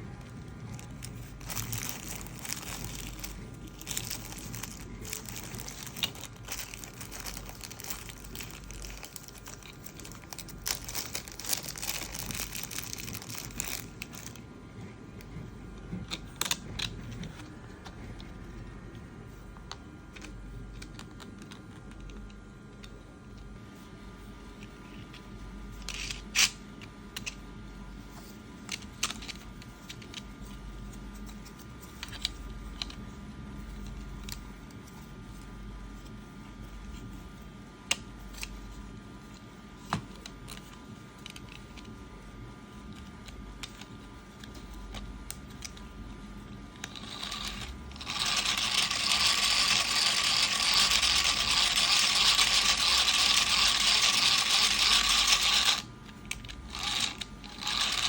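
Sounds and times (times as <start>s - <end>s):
hand-cranked fan whirring: 0.0s - 18.6s, 46.7s - 58.0s
plastic parts clicking and knocking: 0.4s - 14.4s.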